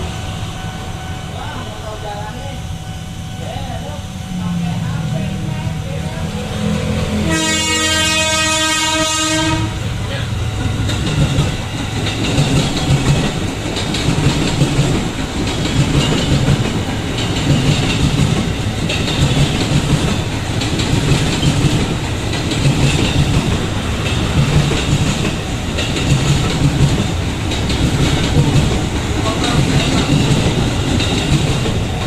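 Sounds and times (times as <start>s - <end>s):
train rolling noise: 0.0s - 32.0s
train wheels clattering over rail joints: 10.6s - 32.0s.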